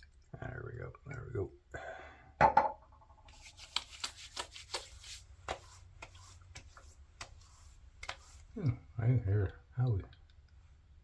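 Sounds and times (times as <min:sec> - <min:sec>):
hands patting and rubbing face: 0:03.3 - 0:08.8.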